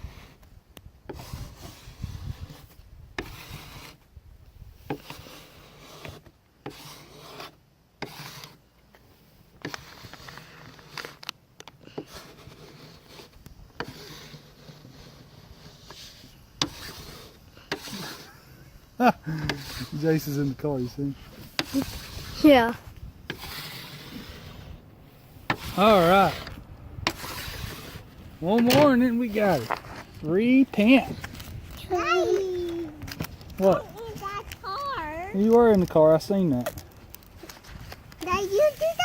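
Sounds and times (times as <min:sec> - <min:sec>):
wind rumble on microphone: 0:00.0 - 0:05.0, 0:21.1 - 0:32.1
rubbing strokes on sticker: 0:01.1 - 0:04.0, 0:04.8 - 0:11.2, 0:11.9 - 0:18.4, 0:19.4 - 0:32.4.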